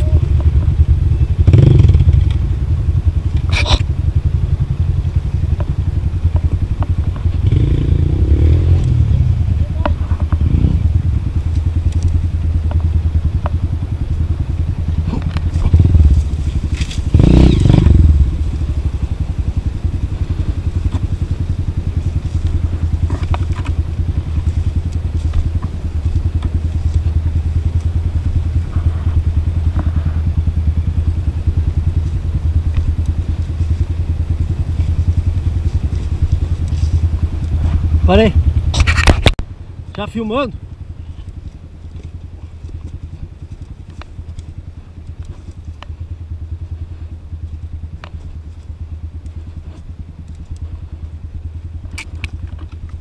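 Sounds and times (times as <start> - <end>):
motorcycle engine rumbling: 0.0 - 53.0
rush of noise: 0.0 - 53.0.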